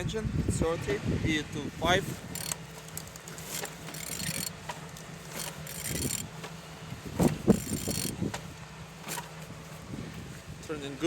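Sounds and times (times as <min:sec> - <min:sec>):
wrench ratcheting engine over: 0:02.2 - 0:06.6, 0:07.2 - 0:08.3.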